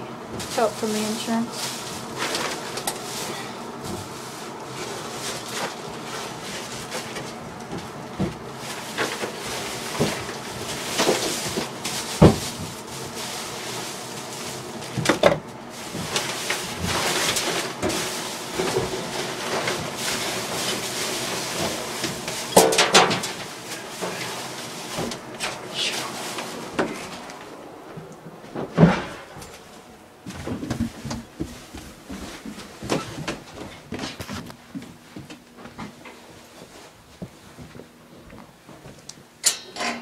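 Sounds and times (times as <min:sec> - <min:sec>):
knocks and clunks of plumbing work: 0:03.8 - 0:13.0, 0:14.8 - 0:25.6, 0:26.3 - 0:36.2, 0:39.4 - 0:40.0.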